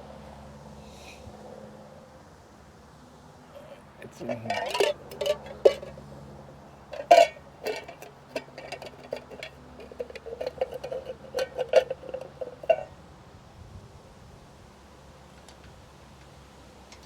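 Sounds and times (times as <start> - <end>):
small metal parts clinking: 3.6 - 6.0, 6.8 - 12.9.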